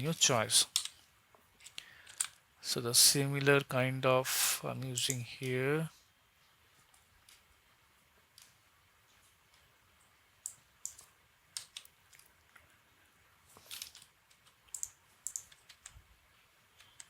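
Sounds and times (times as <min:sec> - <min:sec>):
mouse and keyboard clicks: 0:14.3 - 0:16.0.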